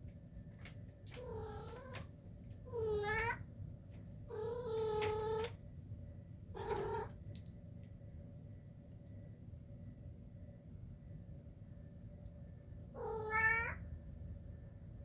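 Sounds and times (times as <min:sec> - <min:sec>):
cat meowing: 0:02.7 - 0:03.4, 0:06.6 - 0:07.1, 0:13.0 - 0:13.8.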